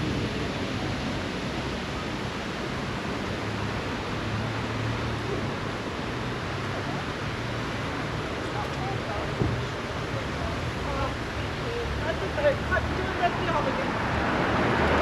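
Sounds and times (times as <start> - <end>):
steady rushing outdoor noise: 0.0 - 15.0.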